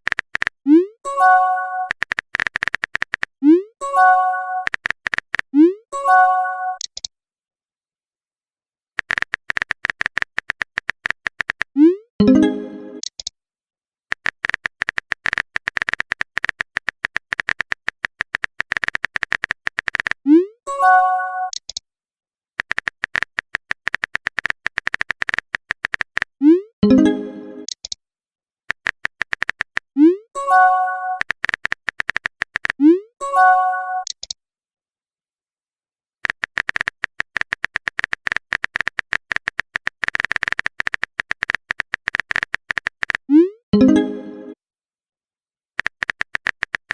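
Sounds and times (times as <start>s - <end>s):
phone keyboard typing clicks: 0.0s - 0.7s, 1.8s - 3.4s, 4.6s - 5.6s, 6.8s - 7.1s, 9.0s - 11.8s, 13.0s - 13.3s, 14.1s - 20.2s, 21.5s - 21.8s, 22.6s - 28.0s, 28.7s - 29.9s, 31.1s - 32.9s, 34.0s - 34.4s, 36.2s - 43.3s, 45.8s - 46.9s.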